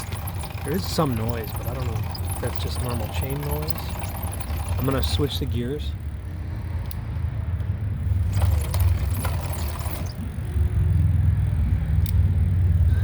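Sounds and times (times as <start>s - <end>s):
bicycle drivetrain humming: 0.0s - 13.0s
derailleur shifting chain clicks: 0.0s - 13.0s.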